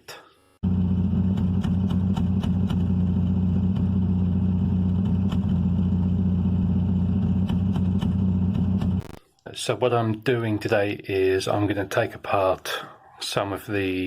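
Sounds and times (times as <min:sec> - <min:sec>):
car engine idling rough: 0:00.6 - 0:09.0.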